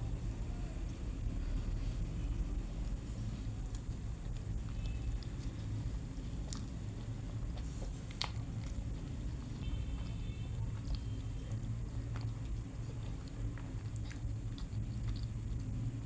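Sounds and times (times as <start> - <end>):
steady low hum: 0.0 - 16.0
person chewing food: 2.8 - 16.0
biting clicks and mouth sounds: 2.9 - 16.0.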